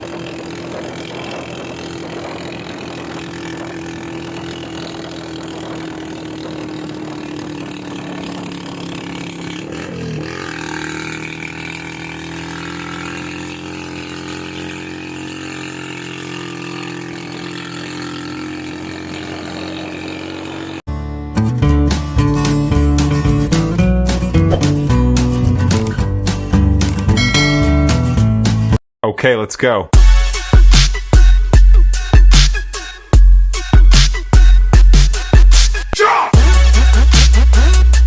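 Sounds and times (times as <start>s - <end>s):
vehicle engine running: 0.0s - 20.8s, 36.4s - 38.0s.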